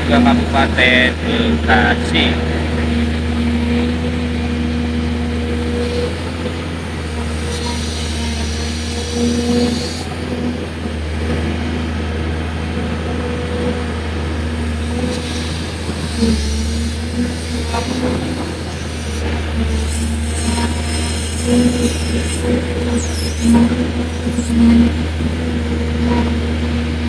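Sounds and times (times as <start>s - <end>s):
excavator engine hum: 0.0s - 27.0s.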